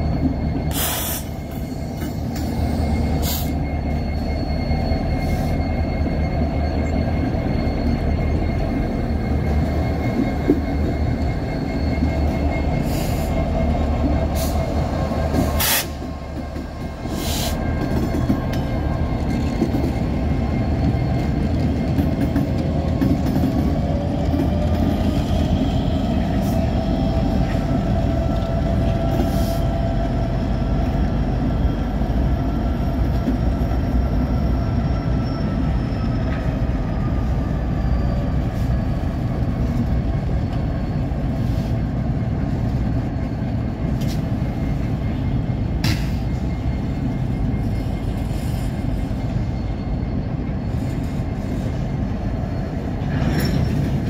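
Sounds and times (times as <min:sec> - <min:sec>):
freight train passing: 0:00.0 - 0:54.0
high wheel squeal ringing: 0:00.0 - 0:54.0.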